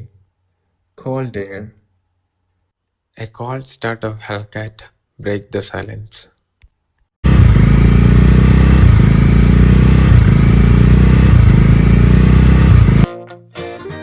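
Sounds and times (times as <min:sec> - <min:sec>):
motorcycle engine running: 0:07.2 - 0:13.1.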